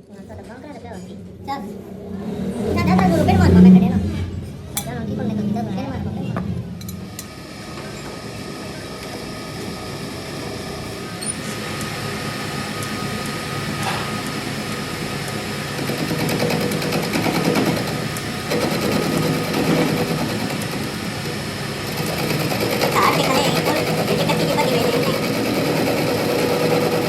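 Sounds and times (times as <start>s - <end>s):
power tool rattling: 12.8s - 27.0s.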